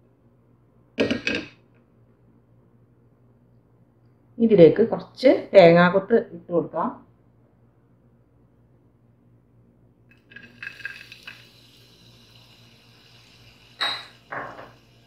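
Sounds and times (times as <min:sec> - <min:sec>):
sizzling in hot oil: 0:10.1 - 0:15.0.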